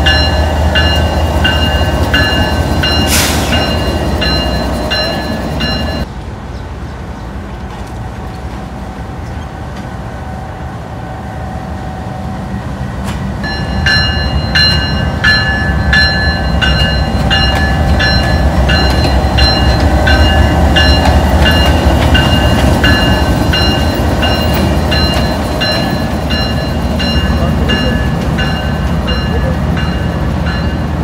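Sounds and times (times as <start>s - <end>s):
train wheels clacking and squealing: 0.0s - 6.1s, 13.0s - 31.0s
locomotive engine rumble: 0.0s - 31.0s.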